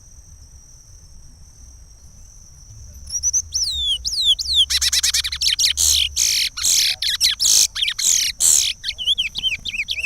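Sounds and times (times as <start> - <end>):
finch singing whistled notes: 3.0 - 10.0.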